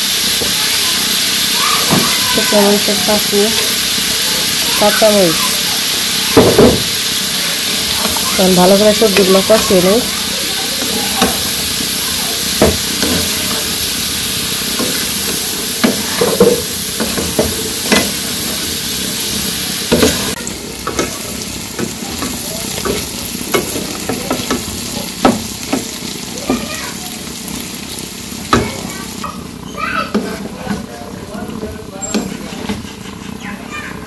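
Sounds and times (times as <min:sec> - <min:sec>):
vegetables sizzling in frying pan: 0:00.0 - 0:34.0
wooden spatula scraping pan: 0:32.0 - 0:33.6.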